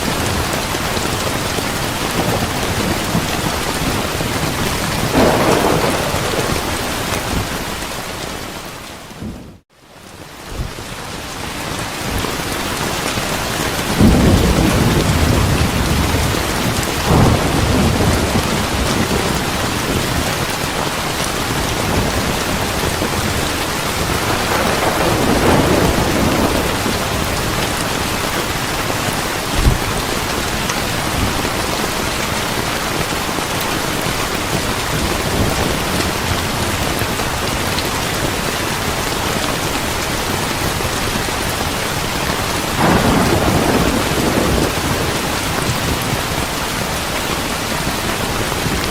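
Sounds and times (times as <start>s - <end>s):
steady rain: 0.0s - 48.9s
rolling thunder: 1.8s - 9.6s, 13.8s - 32.0s, 42.7s - 46.4s
short thump: 29.6s - 29.9s.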